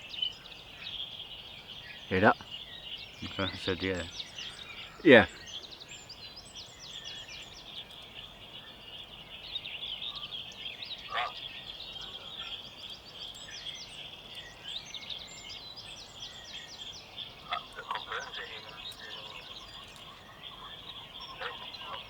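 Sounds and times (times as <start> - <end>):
birds singing: 0.0 - 22.0
loud bird call: 3.2 - 5.7, 17.3 - 22.0.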